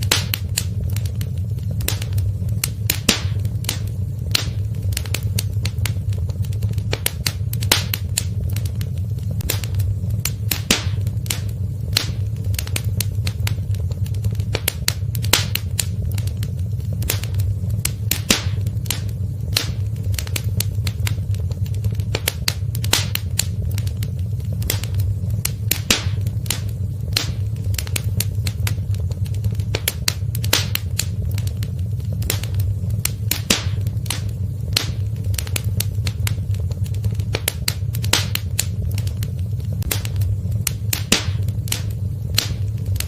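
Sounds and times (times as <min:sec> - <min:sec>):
fire rumbling: 0:00.0 - 0:43.0
wood fire crackling and popping: 0:00.0 - 0:43.0.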